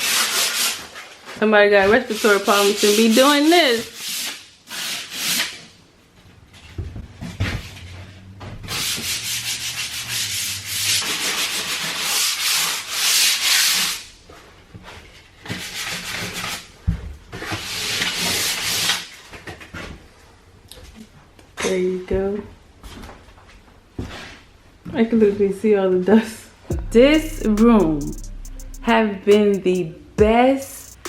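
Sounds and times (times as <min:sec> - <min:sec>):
sanding a wall: 0:00.0 - 0:01.1, 0:02.1 - 0:05.5, 0:08.7 - 0:14.0
low knock: 0:26.7 - 0:28.9.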